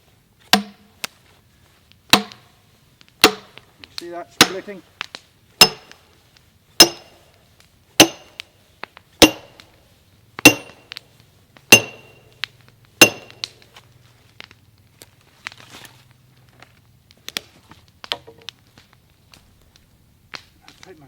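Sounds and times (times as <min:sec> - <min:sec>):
sledgehammer striking steel wedge: 0:00.5 - 0:00.9, 0:02.1 - 0:02.5, 0:03.2 - 0:03.6, 0:04.4 - 0:04.7, 0:05.6 - 0:06.0, 0:06.8 - 0:07.2, 0:08.0 - 0:08.5, 0:09.2 - 0:09.7, 0:10.4 - 0:11.0, 0:11.7 - 0:12.3, 0:13.0 - 0:13.6.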